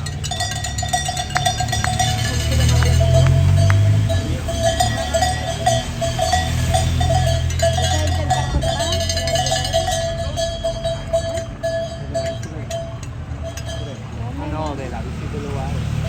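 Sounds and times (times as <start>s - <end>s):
cowbells clanging: 0.0s - 16.0s.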